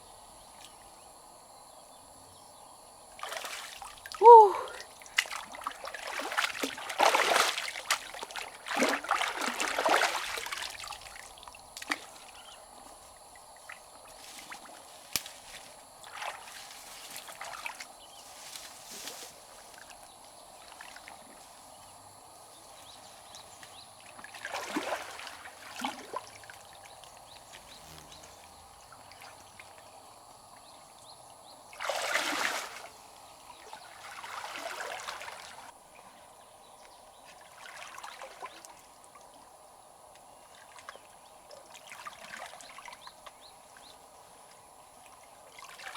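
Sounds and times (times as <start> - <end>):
trickle of flowing water: 3.1 - 35.8, 36.8 - 45.9
river water splashing: 3.2 - 12.4, 15.5 - 17.9, 23.7 - 27.4, 31.7 - 35.7, 37.3 - 38.8.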